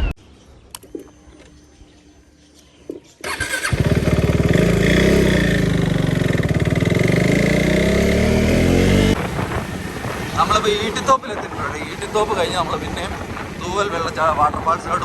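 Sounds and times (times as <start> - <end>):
motorcycle engine starting and running: 3.2 - 15.0.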